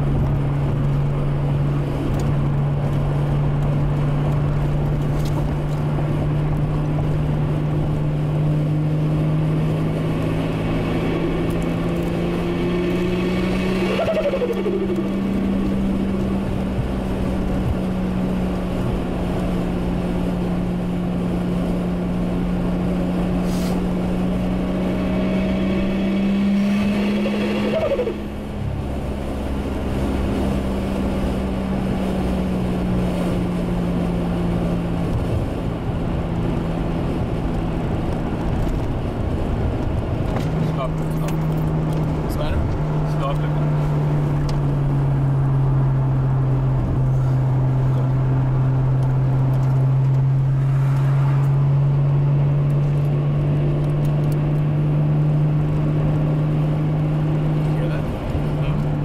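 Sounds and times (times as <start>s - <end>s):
car engine running: 0.0s - 59.0s
turbo whine: 11.0s - 16.1s, 24.7s - 28.9s.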